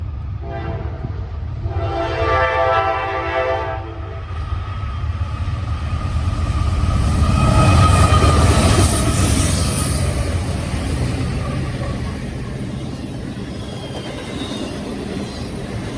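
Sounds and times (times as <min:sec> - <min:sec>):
train rumbling: 0:00.0 - 0:15.9
locomotive horn: 0:00.4 - 0:04.3.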